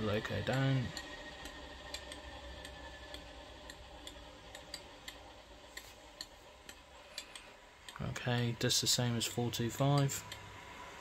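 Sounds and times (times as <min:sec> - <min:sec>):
light regular ticking: 0:00.0 - 0:10.6
model locomotive engine sound: 0:00.0 - 0:11.0.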